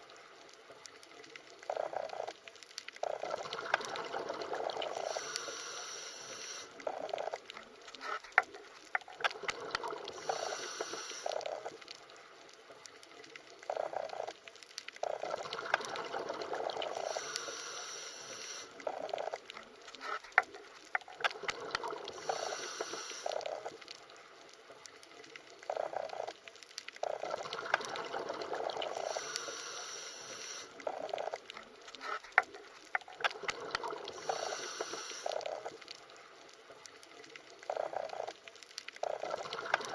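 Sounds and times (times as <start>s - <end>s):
underwater gurgling and bubbling: 0.0s - 39.9s.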